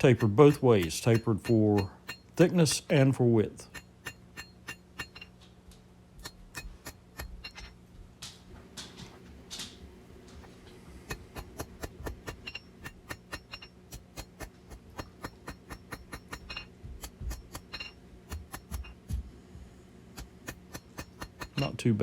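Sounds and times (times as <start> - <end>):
hammer striking hot steel: 0.0 - 3.0, 3.6 - 5.3, 6.2 - 7.8, 11.0 - 19.2, 20.2 - 21.9
low steady hum: 0.0 - 22.0.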